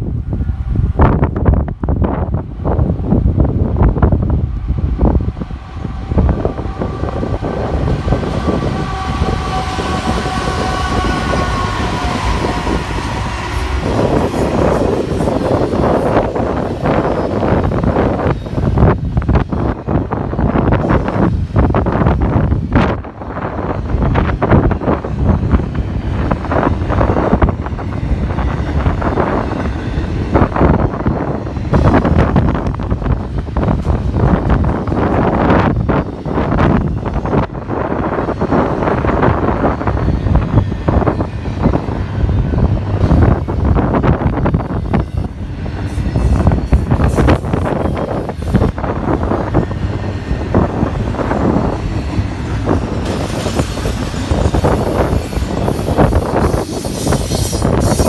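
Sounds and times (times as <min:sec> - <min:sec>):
freight train rumbling past: 0:00.0 - 0:58.0
wind buffeting microphone: 0:00.0 - 0:58.0.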